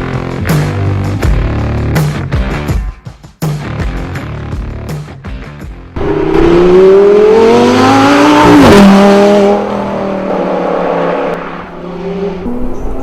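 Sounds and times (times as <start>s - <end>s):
sports car engine accelerating: 6.0s - 13.0s.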